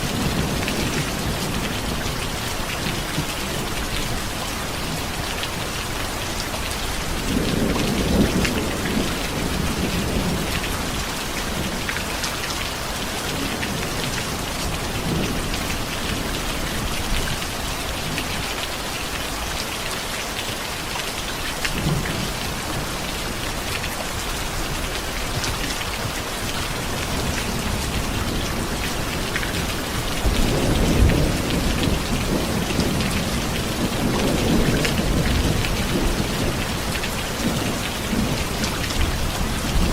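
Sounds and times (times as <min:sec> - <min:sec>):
steady rain falling: 0:00.0 - 0:39.9
low rolls of thunder: 0:07.2 - 0:11.8, 0:27.0 - 0:39.9.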